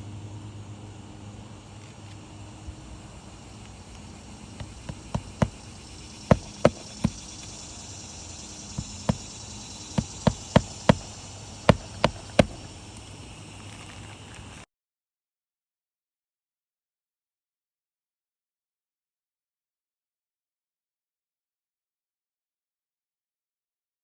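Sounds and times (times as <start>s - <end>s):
high insect buzz: 0.9s - 14.6s
sharp knocks: 4.5s - 7.5s, 8.8s - 12.7s.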